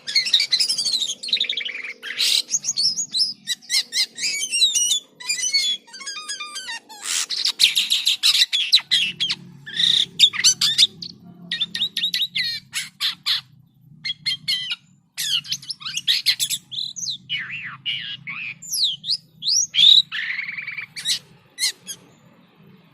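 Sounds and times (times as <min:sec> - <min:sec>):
starling singing: 0:00.0 - 0:22.9.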